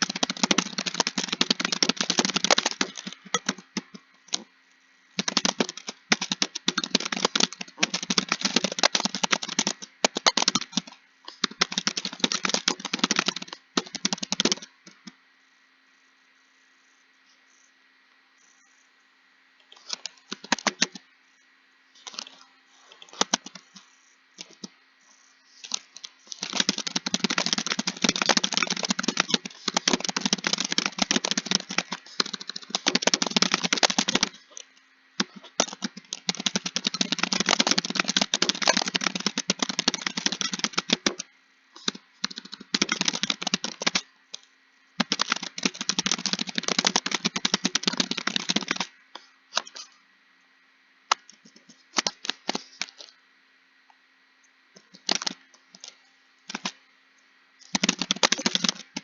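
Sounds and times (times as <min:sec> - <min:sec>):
fast typing on keyboard: 0:00.0 - 0:04.5, 0:05.2 - 0:15.1, 0:19.8 - 0:21.0, 0:23.0 - 0:23.8, 0:24.4 - 0:24.7, 0:25.5 - 0:48.9, 0:51.1 - 0:53.1, 0:54.8 - 0:55.9, 0:56.5 - 0:56.8, 0:57.6 - 0:59.0.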